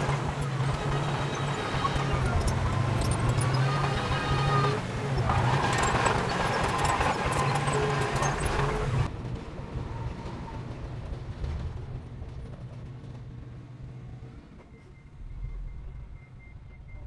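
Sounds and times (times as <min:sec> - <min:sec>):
heavy machinery diesel engine rumble: 0:00.0 - 0:09.1.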